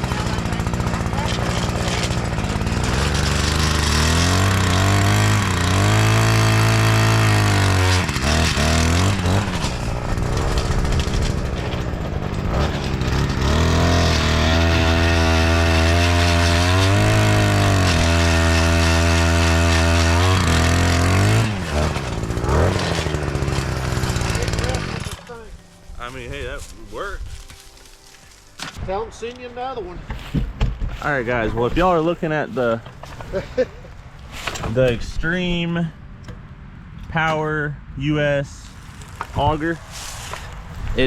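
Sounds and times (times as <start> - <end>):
earth auger engine revving: 0.0 - 25.6.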